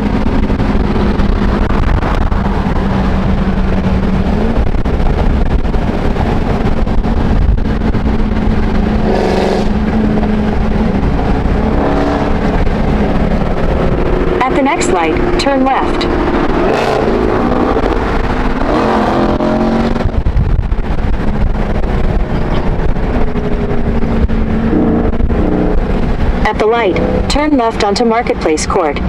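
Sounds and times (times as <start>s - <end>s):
car engine running: 0.0s - 29.0s
road and wind noise: 0.0s - 29.0s.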